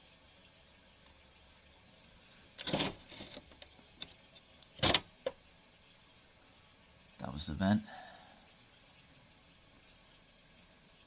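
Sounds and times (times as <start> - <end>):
air conditioner vent clunks and clicks: 2.5 - 5.4.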